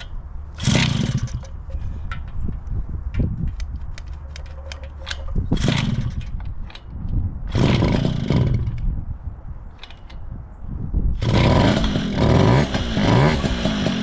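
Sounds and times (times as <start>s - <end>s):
moped engine revving: 0.5s - 1.6s, 5.6s - 6.2s, 7.5s - 8.9s, 11.2s - 14.0s.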